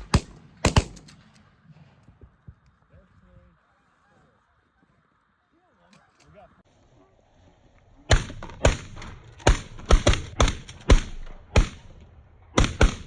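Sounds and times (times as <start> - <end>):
shotgun shots: 0.0 - 1.4, 8.1 - 13.0.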